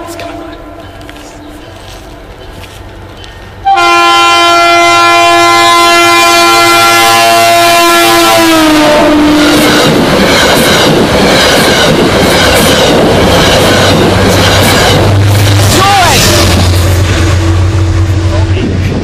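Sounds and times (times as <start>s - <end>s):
train horn: 0.0s - 1.1s, 3.6s - 9.6s
train wheels clattering: 9.4s - 17.4s.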